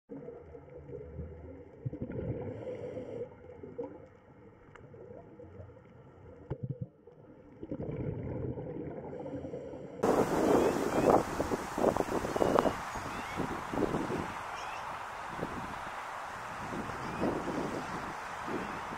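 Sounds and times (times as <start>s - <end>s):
underwater gurgling rumble: 0.1s - 11.8s.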